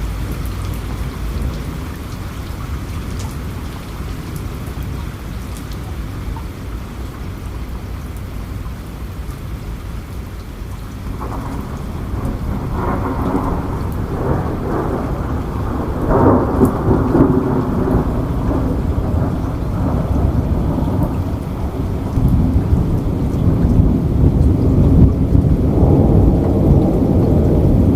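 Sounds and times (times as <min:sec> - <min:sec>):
steady rain: 0:00.0 - 0:27.9
rolling thunder: 0:11.1 - 0:27.9.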